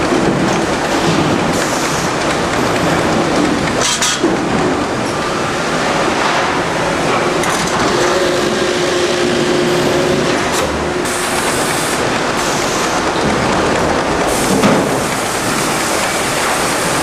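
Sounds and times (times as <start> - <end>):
sawmill machinery noise: 0.0 - 17.0
steady hum: 4.4 - 17.0.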